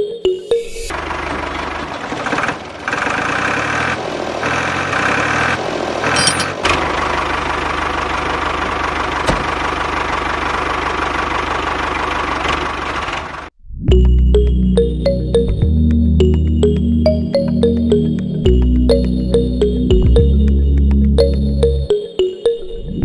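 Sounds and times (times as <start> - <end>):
engine running with knocking beat: 0.9 - 13.5.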